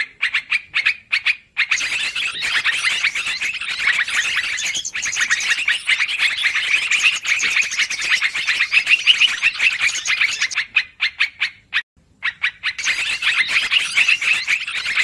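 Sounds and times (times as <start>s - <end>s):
bulbuls chattering: 1.7s - 10.6s, 12.8s - 15.0s.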